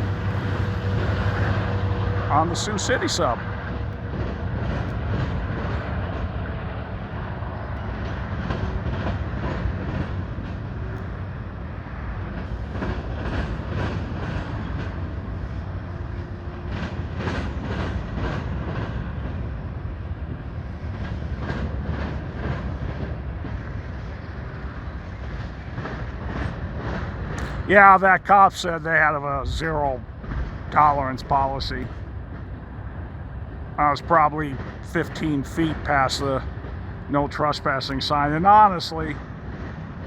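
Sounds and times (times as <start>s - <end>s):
freight train rumbling past: 0.0s - 40.0s
wheels clicking over rail joints: 12.2s - 19.5s.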